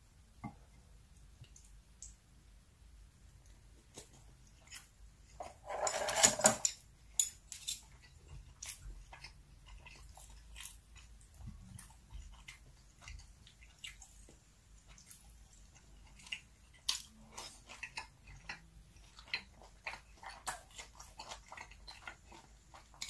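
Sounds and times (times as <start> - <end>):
person chewing food: 3.5 - 5.4, 6.7 - 23.0.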